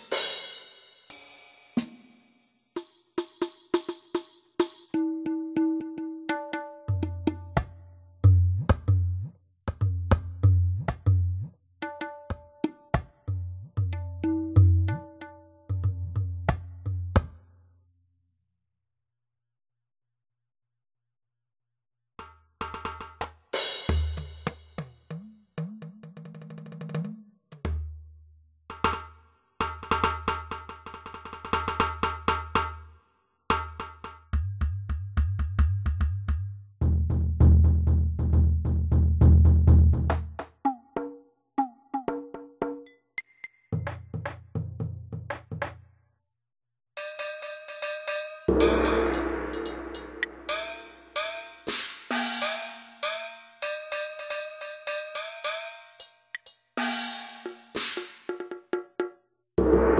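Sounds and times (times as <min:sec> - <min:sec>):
digital drum wood block hits: 0:48.5 - 0:50.9.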